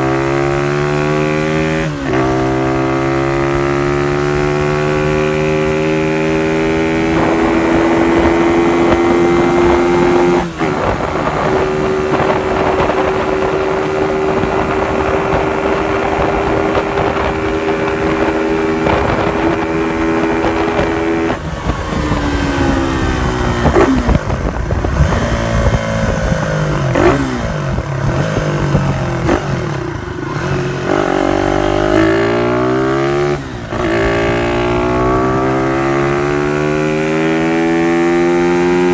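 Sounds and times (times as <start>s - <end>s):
moped engine revving: 0.0s - 38.9s.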